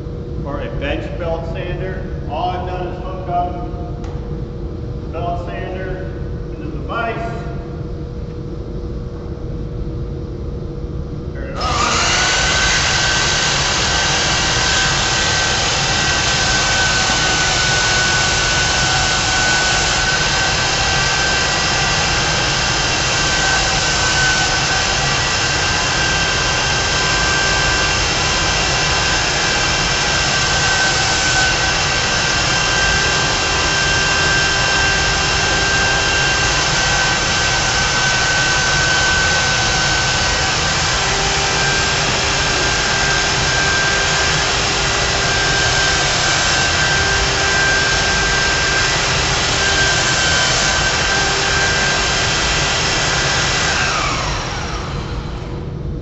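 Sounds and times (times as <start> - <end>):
belt sander whining: 11.5 - 55.5.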